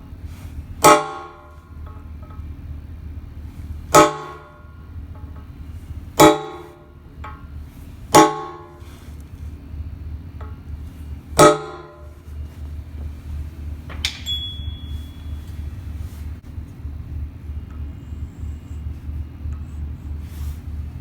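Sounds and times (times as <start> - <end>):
steady low hum: 0.0 - 21.0
steel clanging: 0.8 - 2.4, 3.9 - 5.5, 6.2 - 9.2, 11.4 - 12.5, 13.3 - 16.3.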